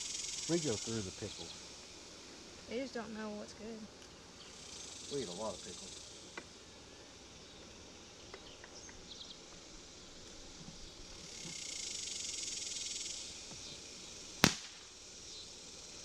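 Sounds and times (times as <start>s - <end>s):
insects droning: 0.0s - 16.0s
faint ticks: 8.3s - 9.7s, 10.6s - 11.9s.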